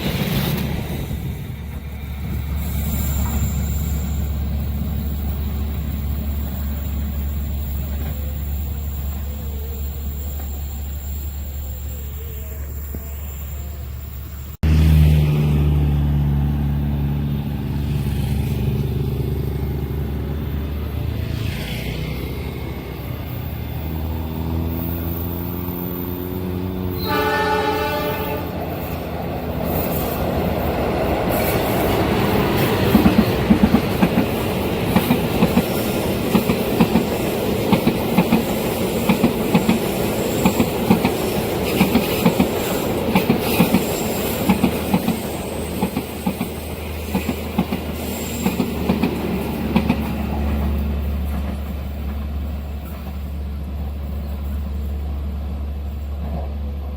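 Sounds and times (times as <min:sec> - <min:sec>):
train engine drone: 0:00.0 - 0:56.9
train horn: 0:26.9 - 0:28.9
wheels clacking over rail joints: 0:28.8 - 0:54.5.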